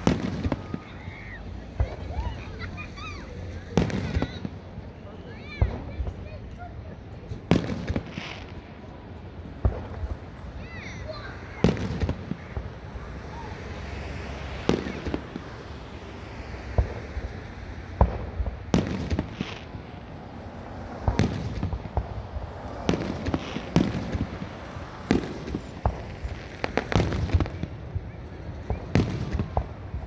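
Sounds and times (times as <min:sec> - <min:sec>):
fireworks booming: 0:00.0 - 0:30.0.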